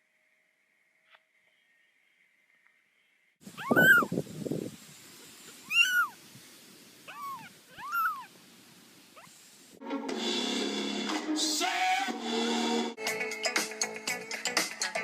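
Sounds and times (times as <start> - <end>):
cat meowing: 3.5 - 4.2, 5.6 - 6.2, 7.1 - 8.3
music: 9.8 - 15.0.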